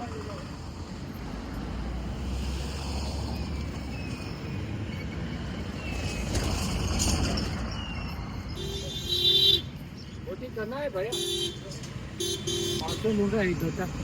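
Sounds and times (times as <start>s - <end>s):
motor vehicle rumble: 0.0s - 14.0s
horn honking: 8.6s - 9.8s, 11.1s - 13.2s.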